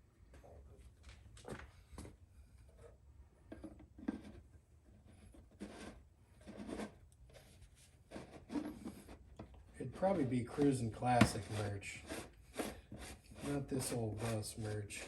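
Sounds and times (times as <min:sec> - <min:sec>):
rustling and scraping of handling: 0:00.2 - 0:15.0.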